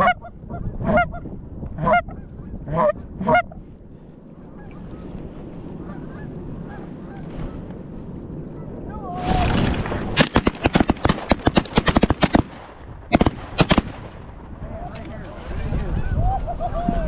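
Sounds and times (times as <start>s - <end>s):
goose honking: 1.8s - 3.6s, 5.8s - 7.7s
geese chattering: 5.8s - 7.7s.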